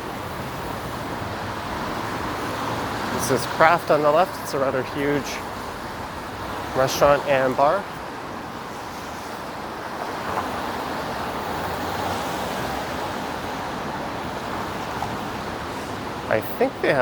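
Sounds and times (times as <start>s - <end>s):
tyres hissing on wet road: 0.0s - 17.0s.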